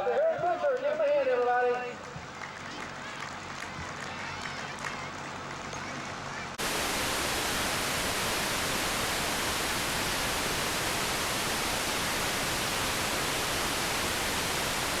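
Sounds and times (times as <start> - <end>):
electronic static hiss: 6.6 - 15.0.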